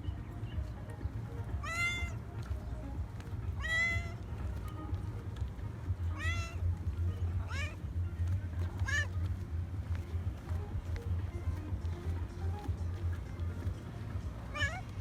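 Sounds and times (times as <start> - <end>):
steady low rumble: 0.0 - 15.0
cat meowing: 1.6 - 2.2, 3.6 - 4.2, 6.1 - 6.6, 7.4 - 7.8, 8.8 - 9.2, 14.5 - 14.9.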